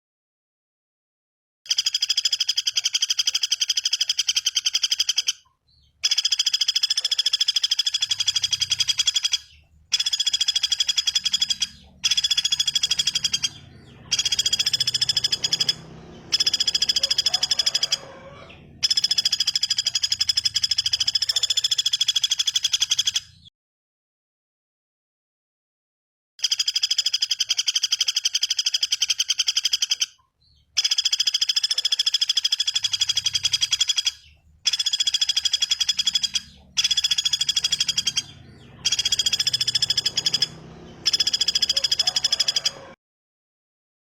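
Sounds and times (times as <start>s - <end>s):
bird rattling trill: 1.7s - 5.4s, 6.0s - 23.4s, 30.8s - 42.9s.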